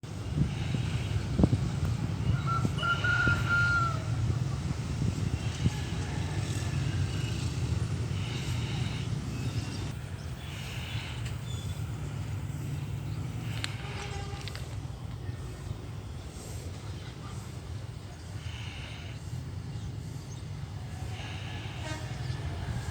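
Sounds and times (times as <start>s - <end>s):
fowl calls: 2.2s - 4.4s.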